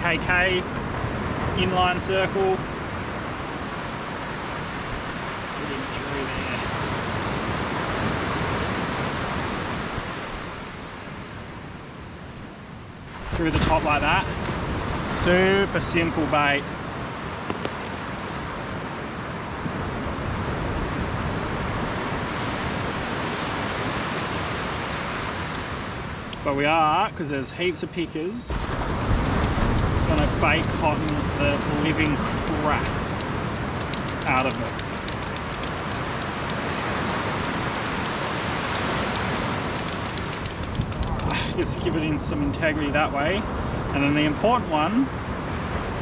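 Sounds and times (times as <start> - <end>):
surf rushing: 0.0 - 46.0
wind: 0.0 - 46.0
rain hissing: 28.6 - 42.4
raindrops ticking: 29.4 - 41.6.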